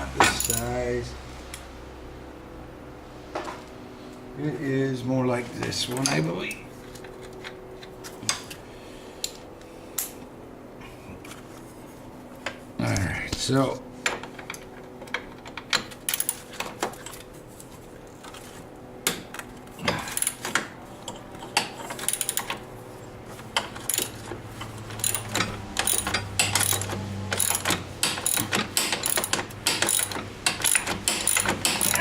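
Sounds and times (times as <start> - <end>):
ratchet wrench clicking: 25.0 - 32.0.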